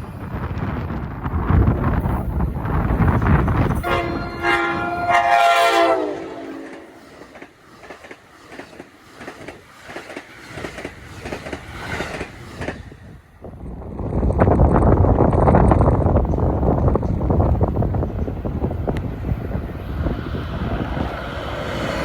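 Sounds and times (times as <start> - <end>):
wind noise on microphone: 0.0 - 6.4, 10.6 - 22.0
train horn: 3.7 - 7.0
train wheels clicking over rail joints: 6.6 - 13.1.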